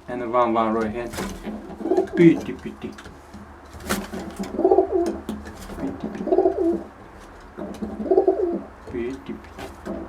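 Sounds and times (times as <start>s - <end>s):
pigeon cooing: 1.4s - 2.9s, 4.2s - 10.0s.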